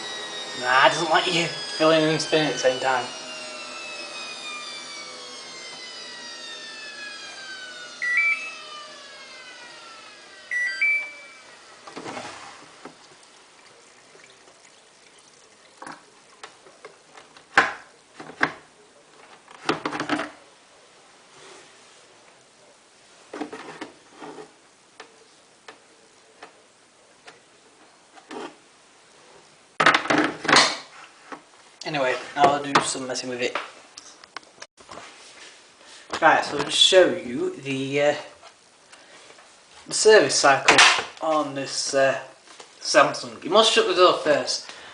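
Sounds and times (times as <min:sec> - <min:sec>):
rising two-note beeps: 0:08.0 - 0:08.5, 0:10.5 - 0:11.5.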